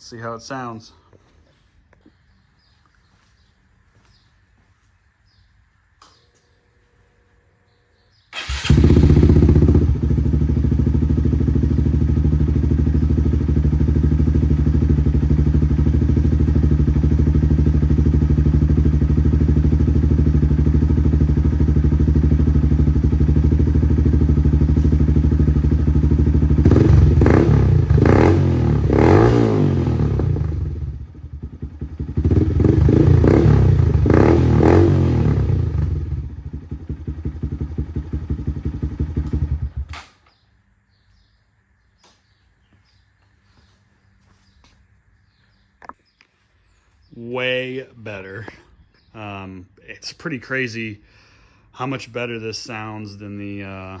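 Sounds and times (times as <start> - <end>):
motorcycle engine idling and revving: 8.3 - 40.4.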